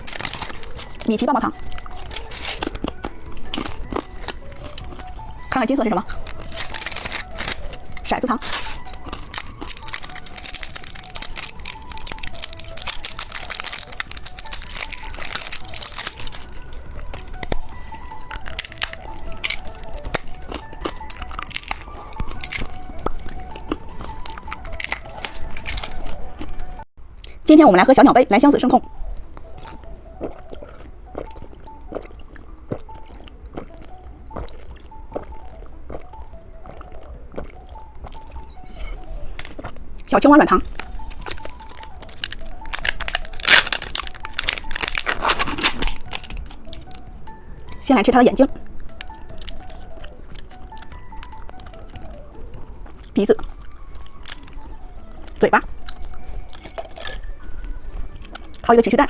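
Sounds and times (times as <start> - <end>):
plastic wrapper crinkling: 0.0 - 26.8, 38.7 - 39.7, 40.6 - 47.8, 48.9 - 58.6
quiet background music: 0.0 - 59.0.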